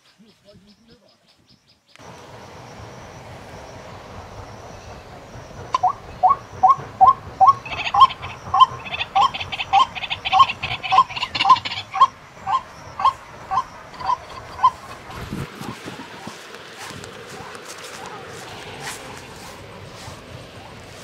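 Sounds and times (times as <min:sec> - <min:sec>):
steady outdoor hiss: 0:00.0 - 0:21.0
high rapid bird chattering: 0:04.4 - 0:16.5.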